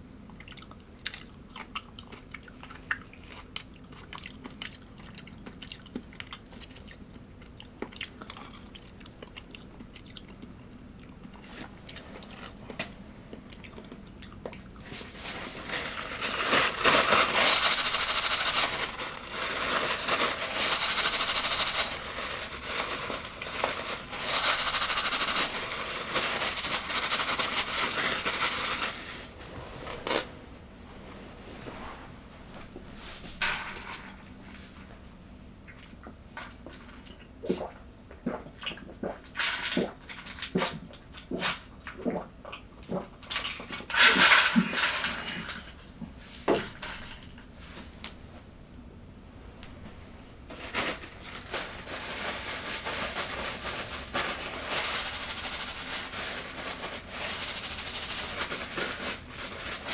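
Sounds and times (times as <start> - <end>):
chewing crunchy food: 0.1 - 15.0.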